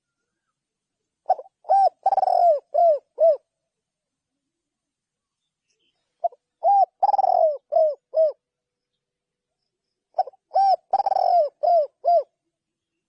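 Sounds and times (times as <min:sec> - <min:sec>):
dove cooing: 0:01.2 - 0:03.5, 0:06.2 - 0:08.4, 0:10.1 - 0:12.4.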